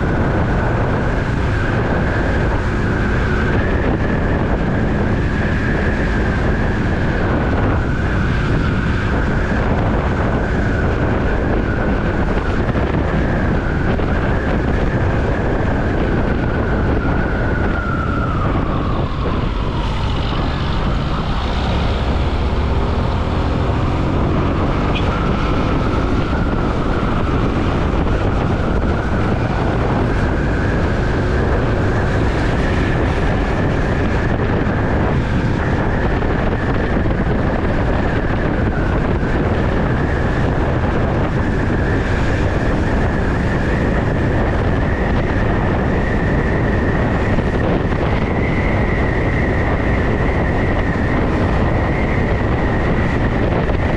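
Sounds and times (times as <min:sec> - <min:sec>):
road noise: 0:00.0 - 0:53.9
wind rushing over microphone: 0:00.0 - 0:53.9
high whine rising in pitch: 0:16.7 - 0:35.0.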